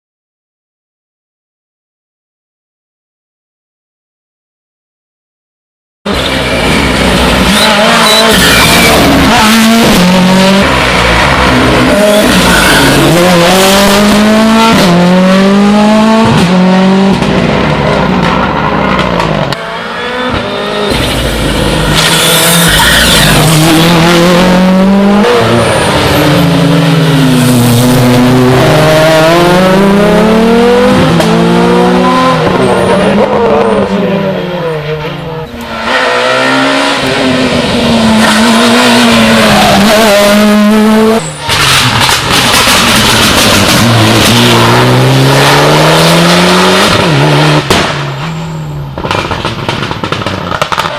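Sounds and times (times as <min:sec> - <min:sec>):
rally car engines revving: 0:06.1 - 0:50.9
tyre squeal: 0:06.2 - 0:09.4, 0:11.9 - 0:13.2, 0:20.6 - 0:23.8.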